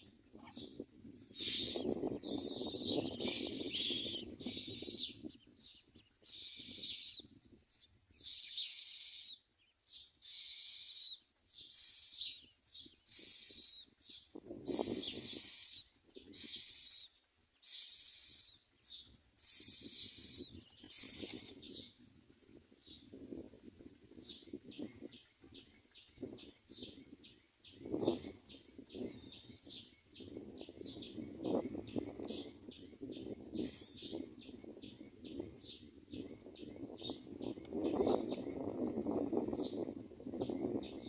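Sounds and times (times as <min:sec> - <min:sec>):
nestlings begging calls: 0:00.4 - 0:21.8, 0:33.6 - 0:34.3
rustle of wings: 0:17.9 - 0:26.3.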